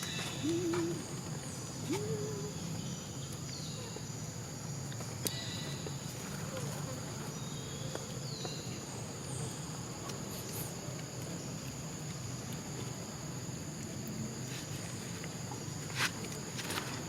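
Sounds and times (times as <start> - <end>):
insects droning: 0.0 - 17.0
outdoor background hiss: 0.0 - 17.0.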